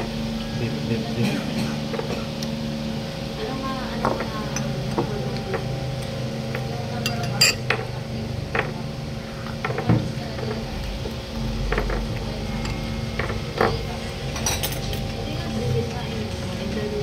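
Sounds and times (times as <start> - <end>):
steady low hum: 0.0 - 17.0
utensils clinking against dishes: 3.9 - 17.0.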